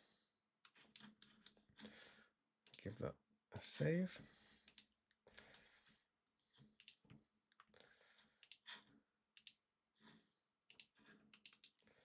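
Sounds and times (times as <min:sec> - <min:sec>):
computer mouse clicks: 0:04.6 - 0:05.7, 0:06.8 - 0:07.7, 0:08.4 - 0:08.8, 0:09.4 - 0:09.6, 0:10.7 - 0:11.8.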